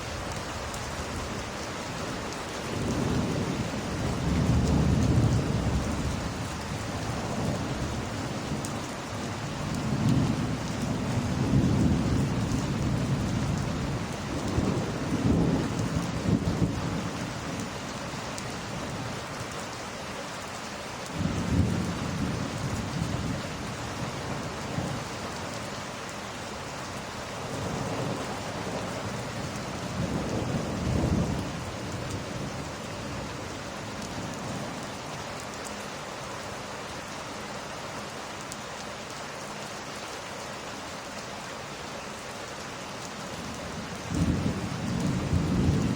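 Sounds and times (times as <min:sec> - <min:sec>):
heavy rain: 0:00.0 - 0:45.9
thunder rumbling: 0:02.6 - 0:08.6, 0:09.7 - 0:17.7, 0:21.2 - 0:25.4, 0:27.5 - 0:34.8, 0:43.3 - 0:45.9.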